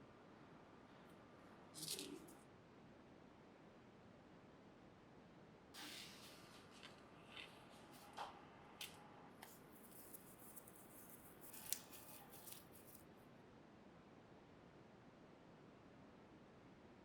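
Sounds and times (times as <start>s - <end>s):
small tools clicking and scraping: 8.8s - 13.0s.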